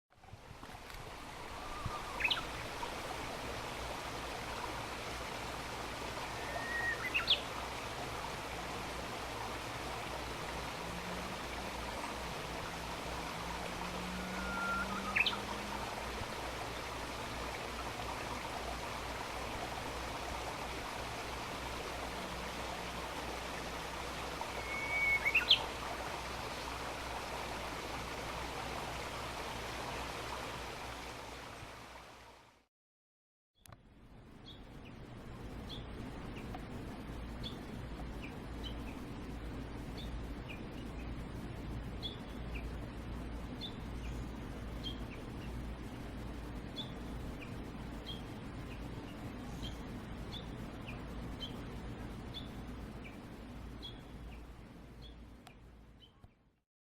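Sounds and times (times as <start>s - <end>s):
bird singing whistled song: 6.4s - 7.4s, 14.2s - 15.4s, 24.5s - 25.6s.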